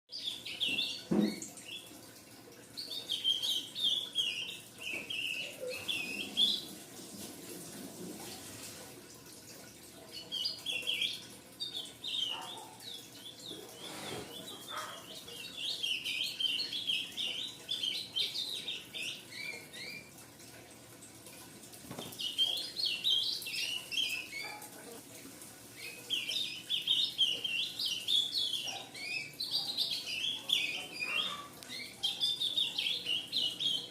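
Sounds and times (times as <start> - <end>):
bird twittering high chirps: 0.1 - 1.9, 2.8 - 6.7, 10.1 - 20.1.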